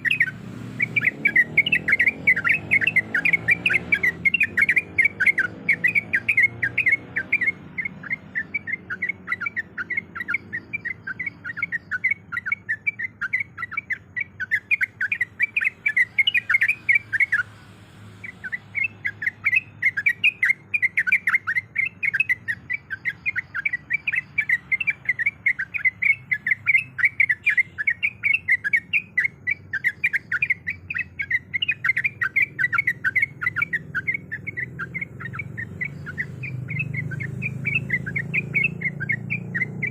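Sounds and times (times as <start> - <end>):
bird chattering: 0.0 - 39.9.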